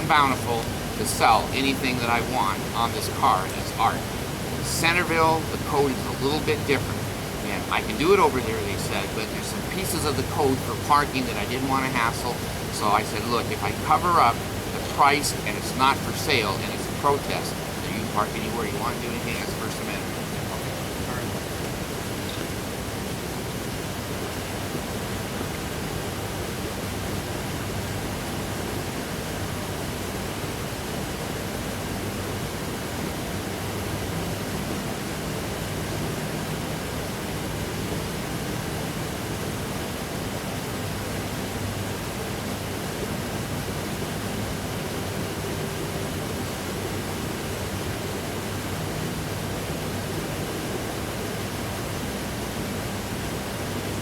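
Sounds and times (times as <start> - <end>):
faint low hum: 0.0 - 27.8
steady hiss-like noise: 0.0 - 54.0.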